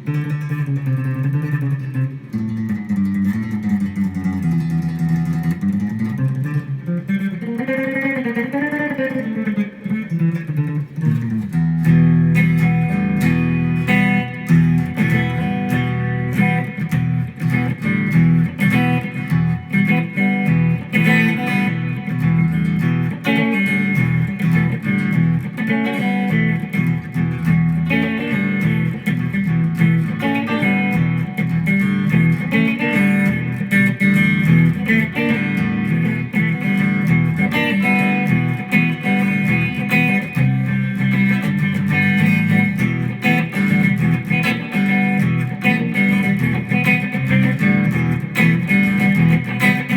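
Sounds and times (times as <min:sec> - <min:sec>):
electric guitar playing: 0:00.0 - 0:49.9.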